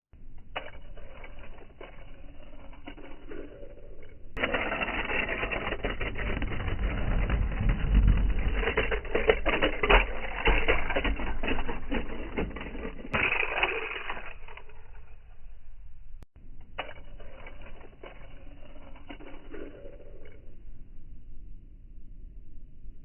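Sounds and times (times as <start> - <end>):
low rumble: 0.3 - 13.2
toy cars clattering: 0.4 - 15.2, 16.6 - 20.6.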